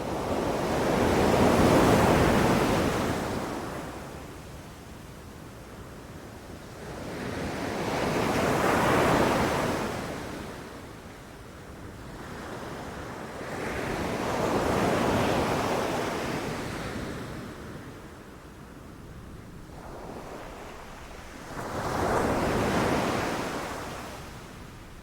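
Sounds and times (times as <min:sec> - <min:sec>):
ocean waves crashing on beach: 0:19.2 - 0:25.0.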